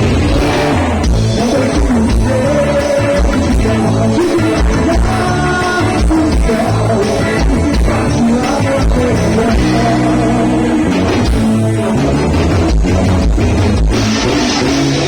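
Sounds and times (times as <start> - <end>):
steady drum beat: 0.0 - 10.4
guitar: 0.0 - 15.0
loud band music: 0.0 - 15.0.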